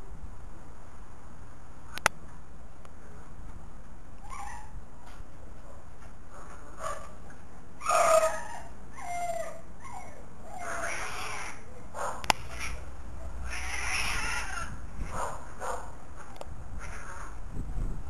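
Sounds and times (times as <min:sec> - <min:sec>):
cats yowling in a fight: 0:07.8 - 0:11.7, 0:12.4 - 0:15.4, 0:16.2 - 0:17.4
sharp click: 0:12.2 - 0:12.5.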